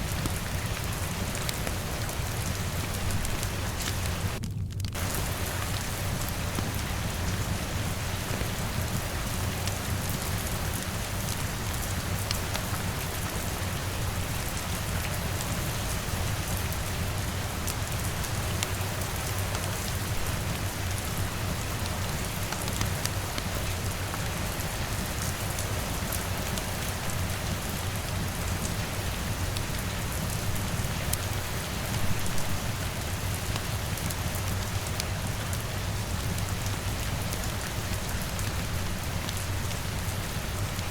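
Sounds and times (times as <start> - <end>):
wood fire crackling: 0.0 - 15.6
rain on window and roof: 0.0 - 40.9.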